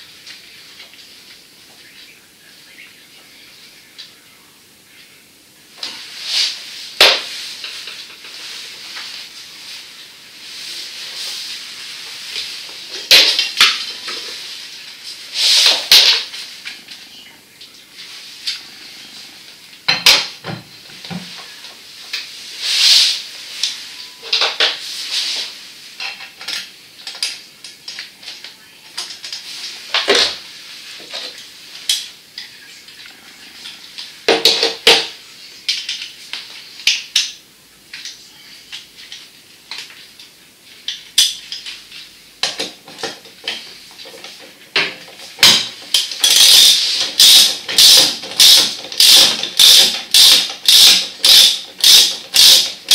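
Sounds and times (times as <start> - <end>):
hard objects clinking and clattering: 42.4 - 52.9.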